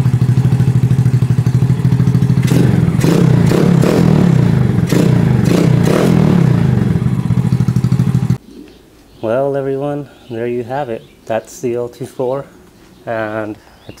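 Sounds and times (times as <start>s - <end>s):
engine idling: 0.0s - 8.4s.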